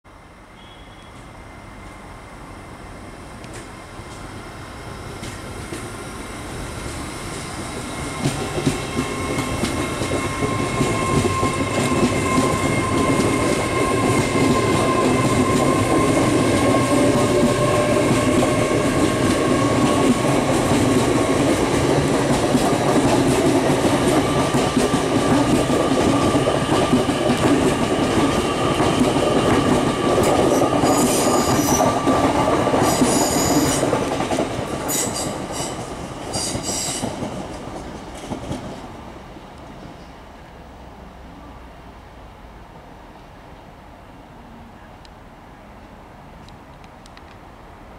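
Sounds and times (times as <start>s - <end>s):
train whine: 0.1s - 44.9s
wheels rumbling on rail: 0.2s - 47.9s
high-pitched wheel squeals: 0.6s - 1.3s, 32.8s - 33.8s.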